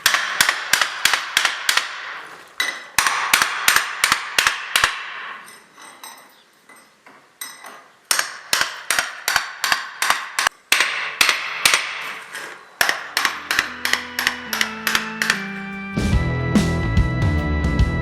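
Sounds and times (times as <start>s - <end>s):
hammer blows with metallic ring: 12.8s - 16.8s
music with low held notes: 13.3s - 18.0s.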